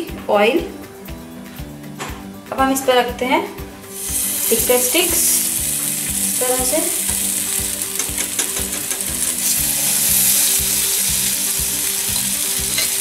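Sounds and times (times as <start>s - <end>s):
skewers sizzling in hot oil: 3.9s - 13.0s
oil crackles: 4.0s - 13.0s.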